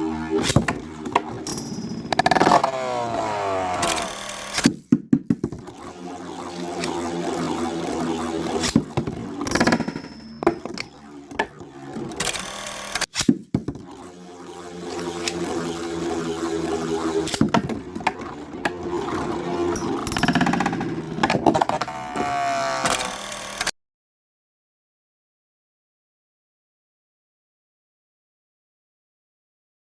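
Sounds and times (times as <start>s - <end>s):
spinning tops whirring: 0.0s - 23.7s
spinning tops clacking: 0.4s - 2.7s, 5.4s - 13.3s, 15.0s - 22.0s.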